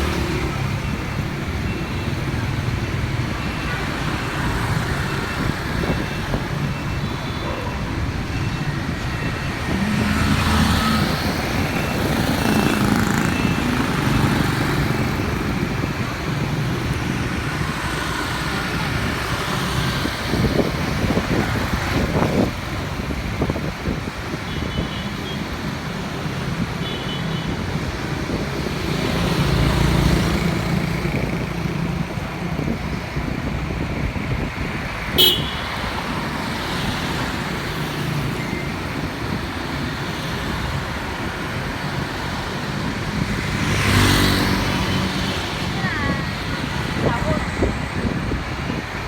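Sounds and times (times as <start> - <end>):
horn beeps: 0.0 - 15.0, 35.2 - 36.0
motorbike engine and road noise: 0.0 - 49.0
vehicles passing: 0.0 - 49.0.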